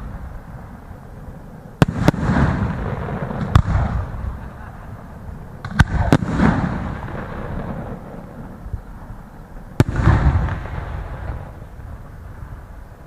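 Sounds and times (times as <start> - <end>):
firework bangs with rumble: 1.8 - 4.5, 5.6 - 8.0, 9.8 - 11.6.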